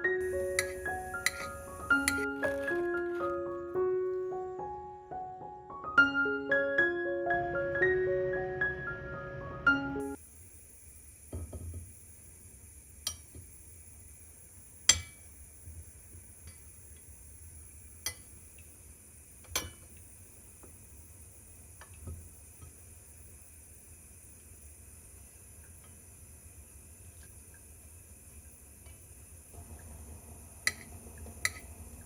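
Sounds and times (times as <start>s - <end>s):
faint steady hiss: 0.0s - 5.6s, 9.8s - 32.0s
piano music: 0.0s - 10.2s
dishes clinking: 0.5s - 2.6s.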